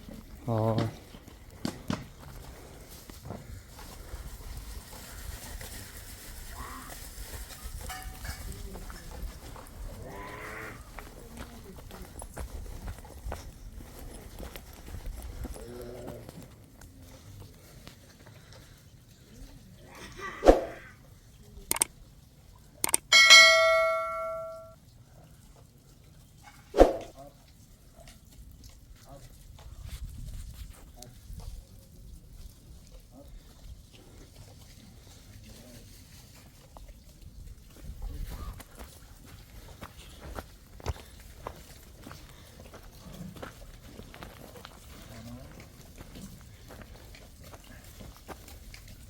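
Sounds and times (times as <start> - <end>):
sharp clicks: 21.7 - 21.9, 22.8 - 23.1
metal object ringing: 22.9 - 24.8.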